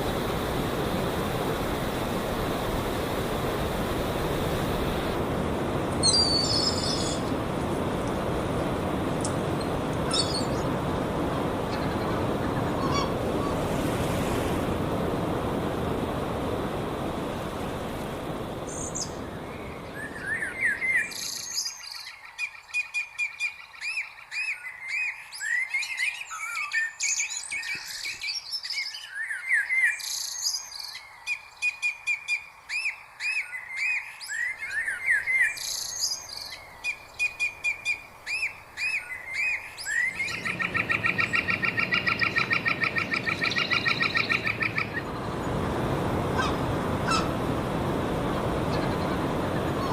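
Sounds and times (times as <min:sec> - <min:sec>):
low steady rush: 0:00.0 - 0:21.7, 0:37.5 - 0:49.9
small birds chirping and singing: 0:06.0 - 0:07.3, 0:09.2 - 0:10.7, 0:32.8 - 0:45.2.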